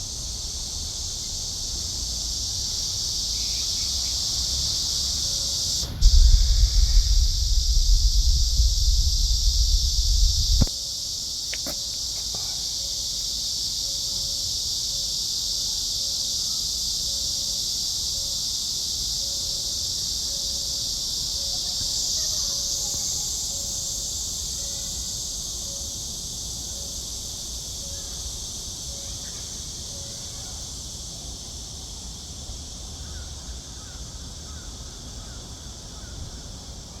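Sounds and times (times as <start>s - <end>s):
cicadas buzzing: 0.0s - 37.0s.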